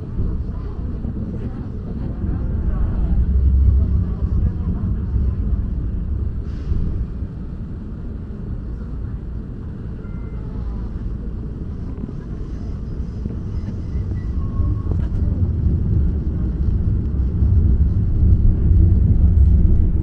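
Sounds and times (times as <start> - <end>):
train wheels rumbling on rails: 0.0 - 20.0
faint high squeaks: 10.0 - 10.9.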